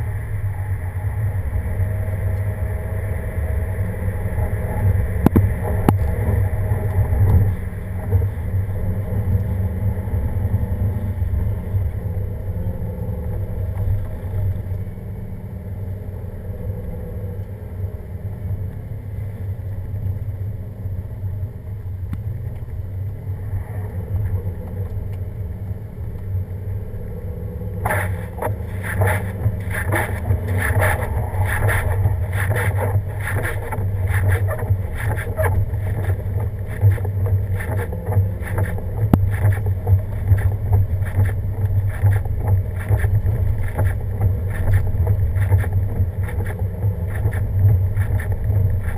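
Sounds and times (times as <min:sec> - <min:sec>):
vehicle driving rumble: 0:00.0 - 0:48.9
rapid irregular knocking clatter: 0:27.8 - 0:48.9.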